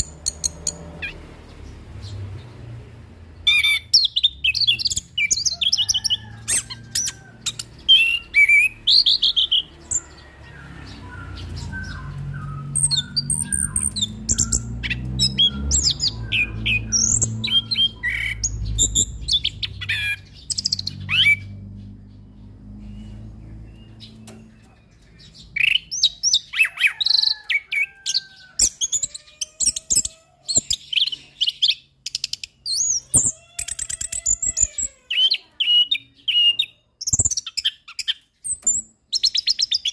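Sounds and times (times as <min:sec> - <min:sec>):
low rumble: 0:10.2 - 0:25.0.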